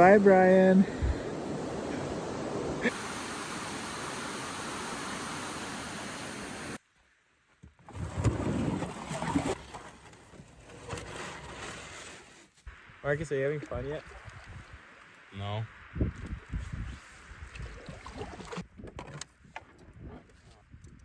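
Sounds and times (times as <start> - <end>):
wind noise: 0.0 - 2.9, 13.7 - 21.0
rushing water: 0.0 - 6.8.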